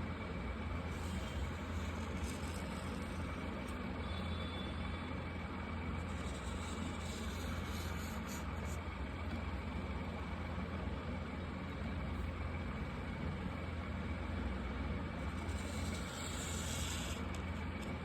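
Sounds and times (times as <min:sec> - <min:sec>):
steady low hum: 0:00.0 - 0:18.0
markers scratching on paper: 0:00.9 - 0:04.4, 0:06.0 - 0:08.8, 0:15.2 - 0:18.0.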